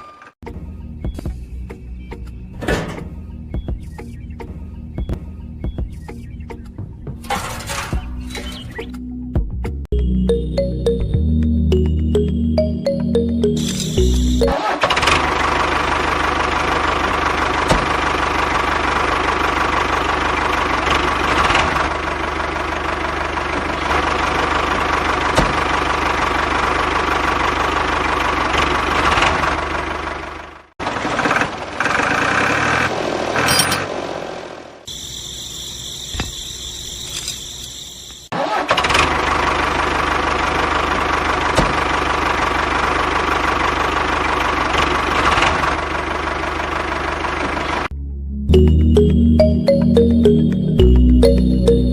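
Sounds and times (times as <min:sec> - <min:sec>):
small tractor motor running: 0:13.6 - 0:34.0, 0:34.9 - 0:47.9.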